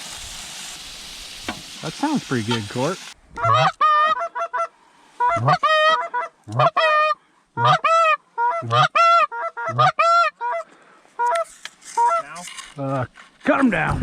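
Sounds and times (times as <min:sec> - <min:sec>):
goose call honks and clucks: 0:03.3 - 0:12.5.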